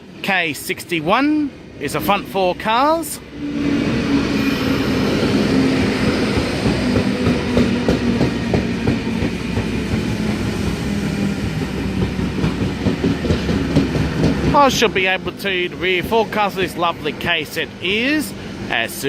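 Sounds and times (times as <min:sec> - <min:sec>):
low steady train hum: 0:00.0 - 0:19.0
wheels clicking over rail joints: 0:06.4 - 0:16.5.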